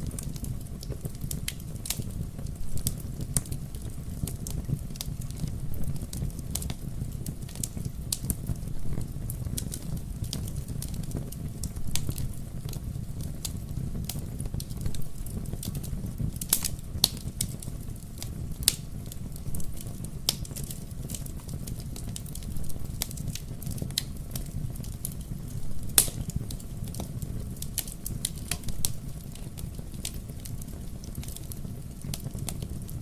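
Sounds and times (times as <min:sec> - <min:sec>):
low rumble of burning: 0:00.0 - 0:33.0
wood fire crackling and popping: 0:00.0 - 0:33.0.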